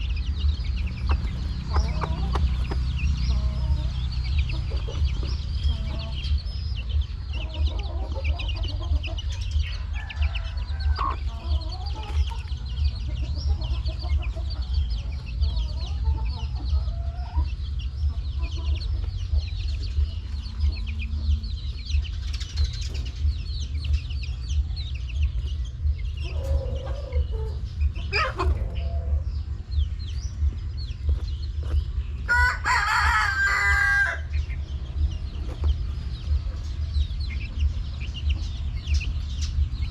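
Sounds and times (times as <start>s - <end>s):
chickens clucking and peeping: 0.0s - 39.9s
steady low hum: 0.0s - 39.9s
rooster crowing: 9.8s - 11.3s, 32.3s - 34.3s.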